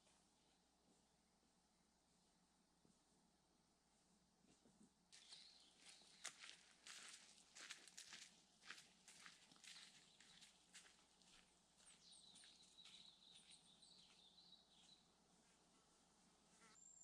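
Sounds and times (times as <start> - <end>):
footsteps crunching on forest track: 5.1 - 15.6.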